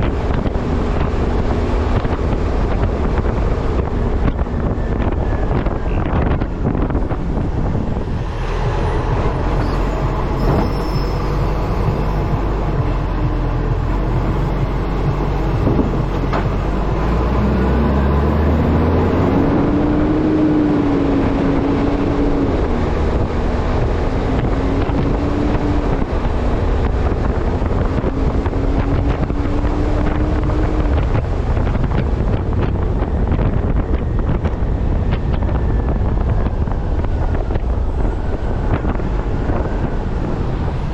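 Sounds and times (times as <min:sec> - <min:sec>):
truck engine drone: 0:00.0 - 0:40.9
wind rushing over microphone: 0:00.0 - 0:40.9
tone rising and falling in pitch: 0:07.0 - 0:25.8.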